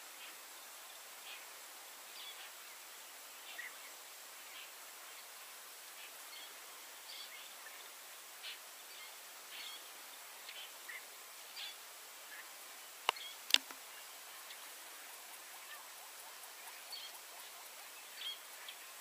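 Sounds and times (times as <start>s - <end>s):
steady hiss: 0.0s - 19.0s
sharp clicks: 13.1s - 13.8s.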